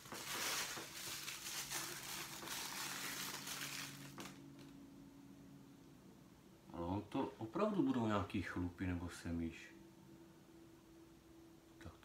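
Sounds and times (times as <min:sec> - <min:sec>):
packaging rustling: 0:00.0 - 0:04.7
faint steady hum: 0:00.0 - 0:12.0.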